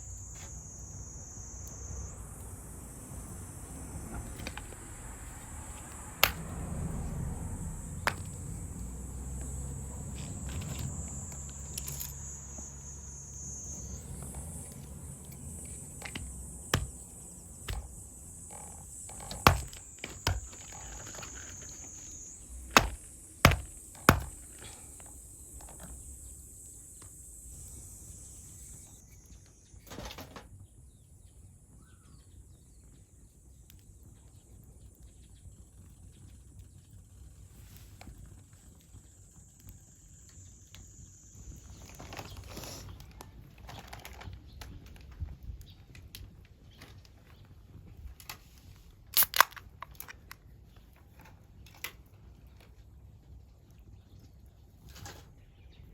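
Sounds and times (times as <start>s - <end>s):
insects calling: 0.0s - 32.8s, 39.0s - 44.7s
sharp wooden knocks: 16.1s - 17.0s, 19.1s - 21.2s, 22.8s - 24.6s.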